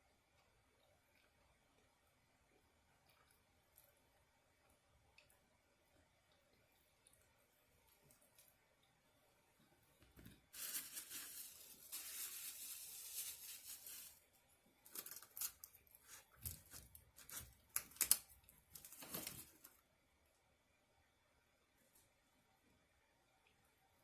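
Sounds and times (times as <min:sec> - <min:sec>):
packaging rustling and tearing: 0:10.6 - 0:14.2, 0:18.8 - 0:19.7
sharp crinkles and handling clicks: 0:16.4 - 0:19.7.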